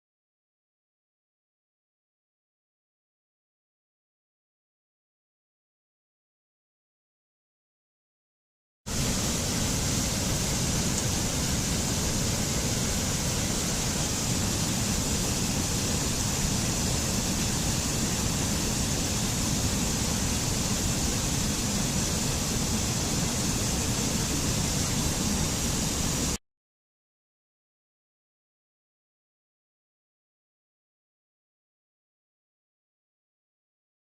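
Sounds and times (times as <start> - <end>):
steady rushing noise: 8.9 - 26.4.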